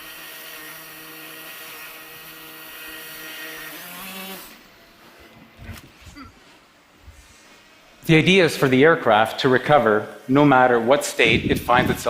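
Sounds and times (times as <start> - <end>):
drone propellers whirring: 9.4 - 12.0.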